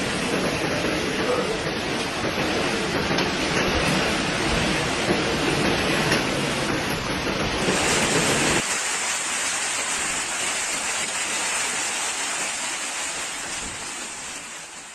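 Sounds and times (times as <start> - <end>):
pouring rain hissing: 7.6 - 14.9.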